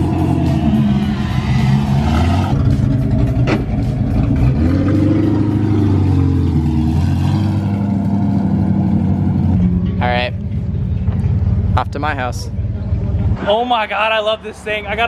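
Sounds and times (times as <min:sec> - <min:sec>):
car engine revving: 0:00.0 - 0:13.6.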